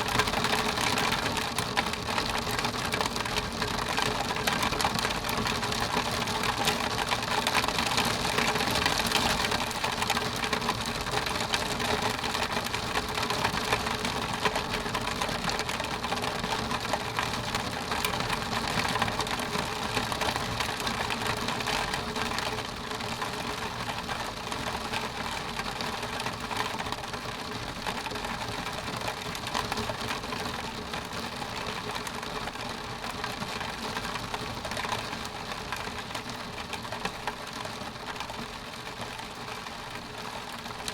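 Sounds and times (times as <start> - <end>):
rain pattering on window: 0.0 - 40.9.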